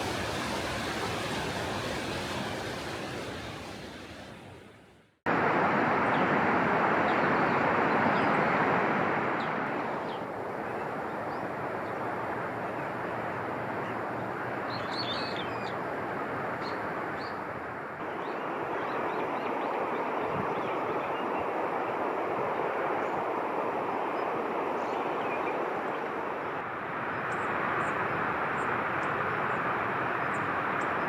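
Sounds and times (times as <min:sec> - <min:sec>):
steady rushing noise: 0:00.0 - 0:14.7.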